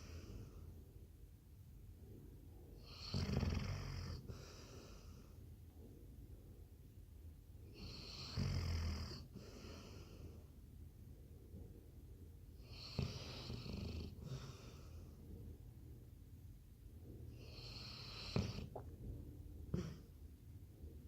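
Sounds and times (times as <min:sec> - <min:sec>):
dog snoring: 0:02.8 - 0:05.4, 0:07.7 - 0:10.4, 0:12.6 - 0:15.2, 0:17.3 - 0:18.9.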